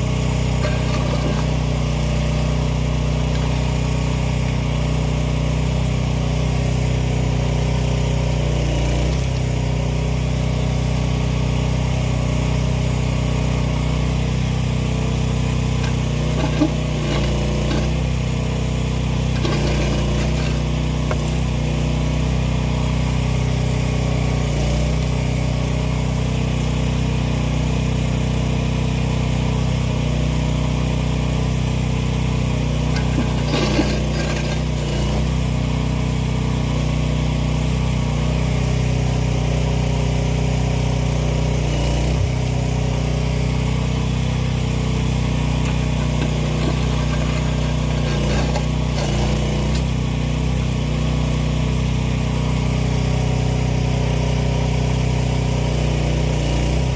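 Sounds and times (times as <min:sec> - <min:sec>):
excavator engine running: 0:00.1 - 0:05.0, 0:15.1 - 0:21.7, 0:32.7 - 0:35.4, 0:45.1 - 0:50.6.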